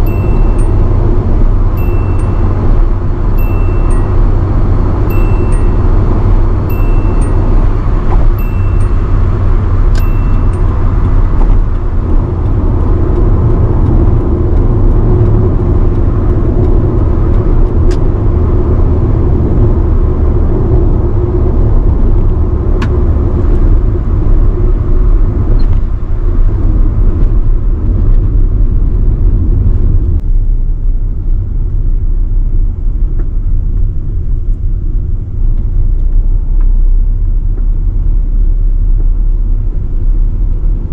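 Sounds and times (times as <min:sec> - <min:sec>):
electronic warning chime: 0:00.0 - 0:11.0
engine and road rumble: 0:00.0 - 0:40.9.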